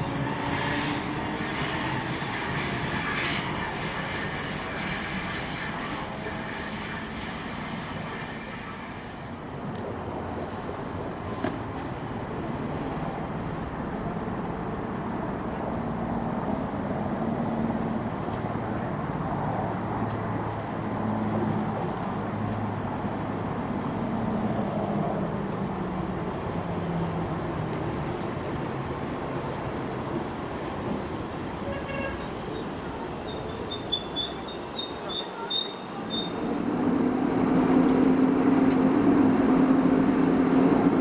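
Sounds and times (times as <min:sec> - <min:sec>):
train rumbling: 0:00.0 - 0:22.7, 0:27.2 - 0:41.0.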